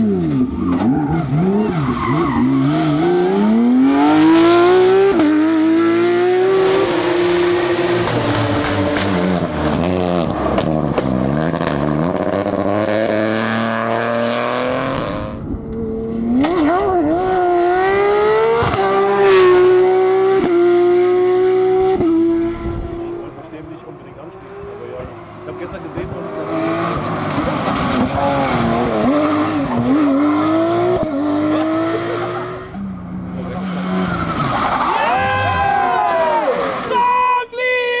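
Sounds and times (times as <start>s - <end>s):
rally car engines revving: 0.0s - 37.2s
exhaust pops and bangs: 8.0s - 12.4s.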